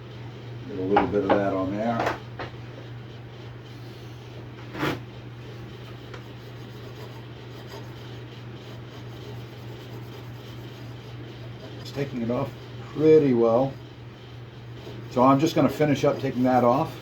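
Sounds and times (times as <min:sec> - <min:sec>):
steady low hum: 0:00.0 - 0:17.0
rag wiping metal plate: 0:14.8 - 0:17.0.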